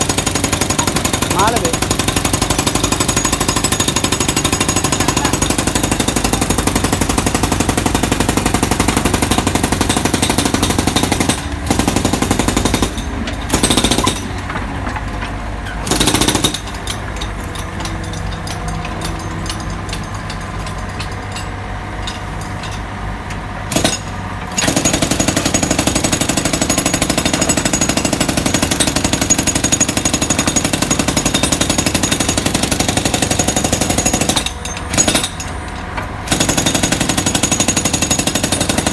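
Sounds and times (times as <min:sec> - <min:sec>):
machine engine running: 0:00.0 - 0:30.2
jackhammer hammering: 0:00.0 - 0:38.9.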